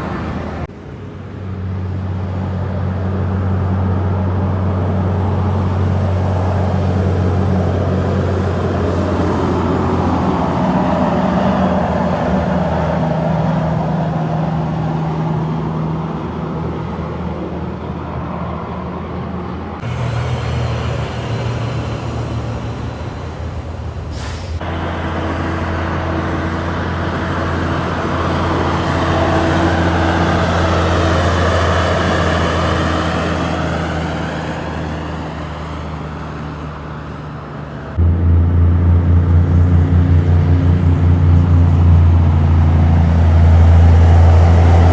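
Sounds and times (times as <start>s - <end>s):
trucks driving past: 0.0s - 44.9s
brief hiss: 19.8s - 24.6s.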